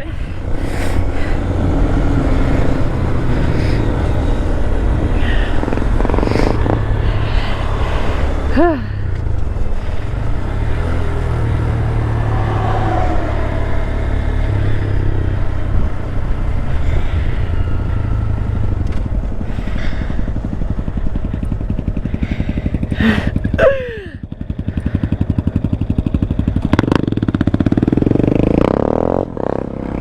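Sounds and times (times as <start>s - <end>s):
wind rumble on microphone: 0.0s - 23.6s
motorcycle engine running: 0.0s - 30.0s.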